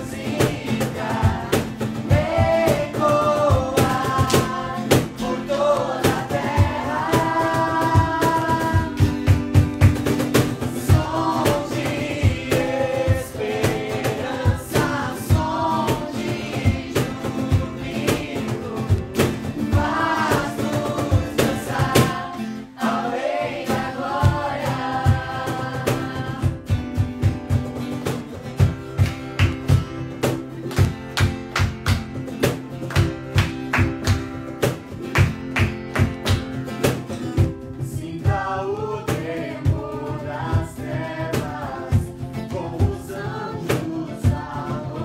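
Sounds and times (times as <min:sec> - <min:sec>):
voices singing: 0:00.0 - 0:09.6, 0:10.4 - 0:26.8, 0:37.7 - 0:45.0.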